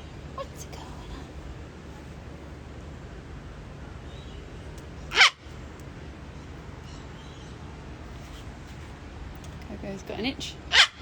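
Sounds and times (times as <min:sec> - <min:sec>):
steady low hum: 0:00.0 - 0:10.8
cockatoo squawk: 0:05.1 - 0:05.5, 0:10.7 - 0:11.0.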